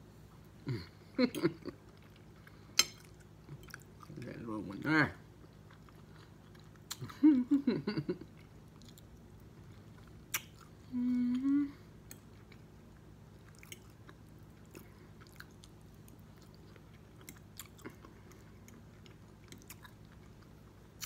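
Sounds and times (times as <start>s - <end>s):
person chewing food: 0.4s - 4.4s, 5.2s - 21.0s
person humming: 10.8s - 11.9s.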